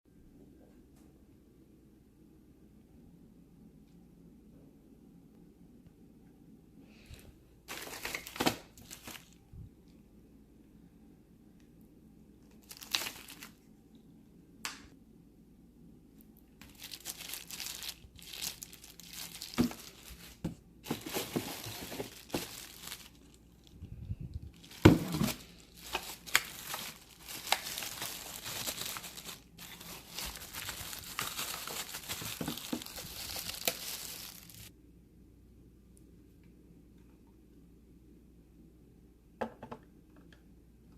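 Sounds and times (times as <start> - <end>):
plastic and paper packaging crinkling: 7.7 - 9.4, 12.5 - 13.6, 16.6 - 34.7.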